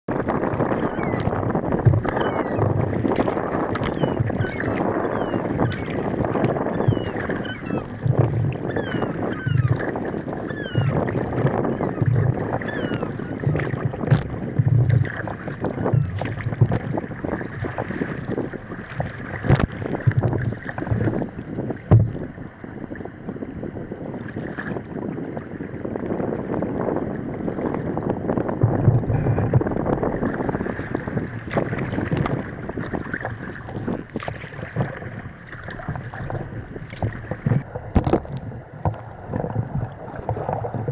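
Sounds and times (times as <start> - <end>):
water splashing against kayak hull: 0.1 - 40.9
wind buffeting microphone: 0.1 - 40.9
short low thumps: 28.4 - 32.4.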